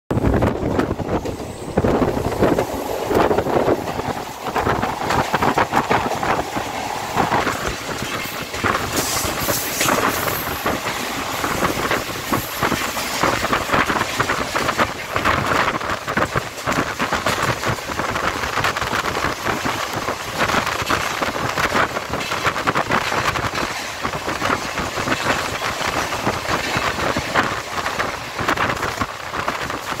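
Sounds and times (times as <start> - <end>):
moving train rushing noise: 0.1 - 30.0
wheels clacking on track: 0.1 - 30.0.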